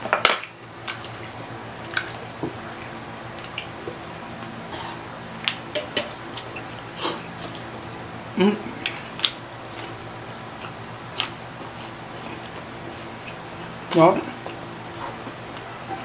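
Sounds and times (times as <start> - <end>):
steady low hum: 0.0 - 16.0
crunchy chewing: 0.8 - 7.7, 8.6 - 16.0
wet mouth clicks: 3.3 - 3.7.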